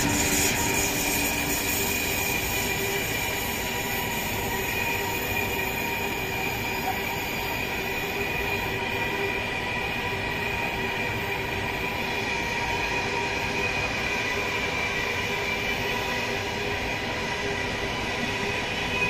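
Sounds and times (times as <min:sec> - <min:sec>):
thin high whine: 0:00.0 - 0:09.3
train wheels on rails: 0:00.0 - 0:19.0.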